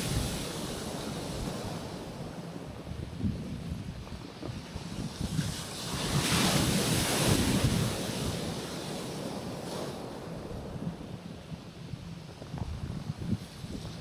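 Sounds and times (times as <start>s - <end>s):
wave washing onto rocky shore: 0.0s - 11.1s
wind rumbling on microphone: 0.0s - 14.0s.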